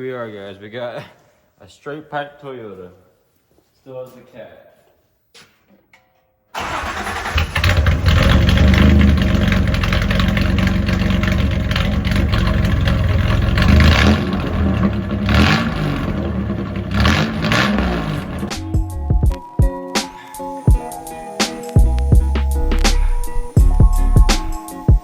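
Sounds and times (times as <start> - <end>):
loud pickup engine idling and revving: 6.6 - 18.8.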